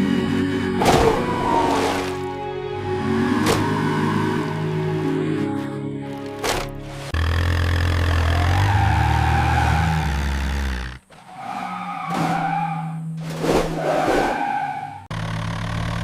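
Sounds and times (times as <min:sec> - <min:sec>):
cartoon engine hum: 0:07.0 - 0:11.1.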